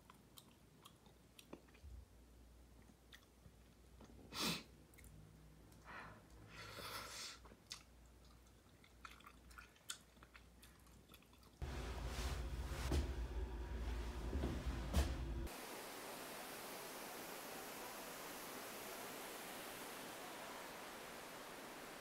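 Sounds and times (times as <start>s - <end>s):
person chewing soft food: 0.0s - 2.1s, 2.7s - 4.2s, 7.5s - 11.6s.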